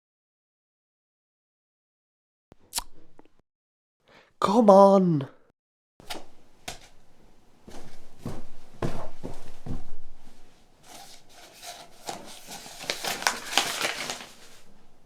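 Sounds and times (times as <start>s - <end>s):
rubbing or scraping noises: 7.6s - 15.0s.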